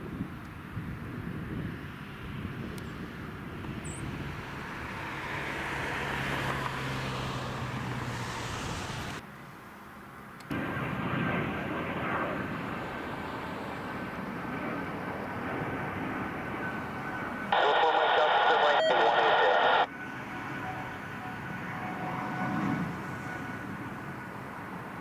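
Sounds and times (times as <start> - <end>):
airliner engines rushing: 0.0 - 25.0
steady high whine: 14.5 - 21.8.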